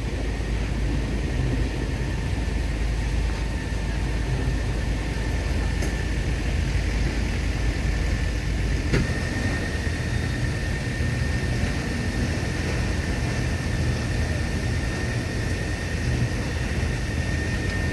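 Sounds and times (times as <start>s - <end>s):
tractor diesel engine running: 0.0s - 17.9s
thin high whine: 0.2s - 17.9s.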